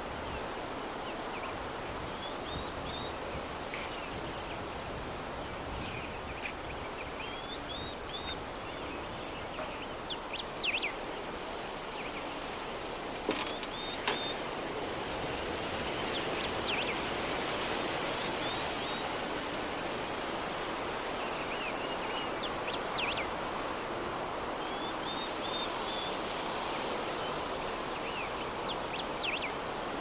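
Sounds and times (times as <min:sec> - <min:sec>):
soft breeze: 0:00.0 - 0:30.0
small birds chirping: 0:05.5 - 0:14.7.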